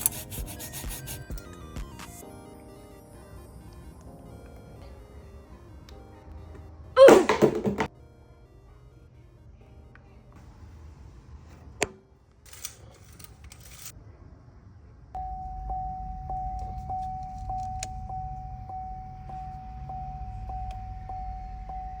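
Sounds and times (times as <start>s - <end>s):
keys jangling: 12.5s - 13.9s
car warning tone: 15.2s - 22.0s.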